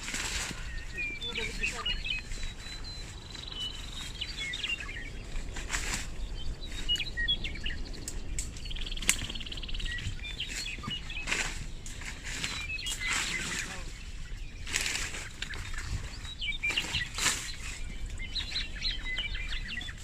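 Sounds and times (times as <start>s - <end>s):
small birds chirping: 0.0s - 20.0s
fast buzzy bird trill: 0.1s - 8.0s
brief rustles: 14.6s - 18.6s.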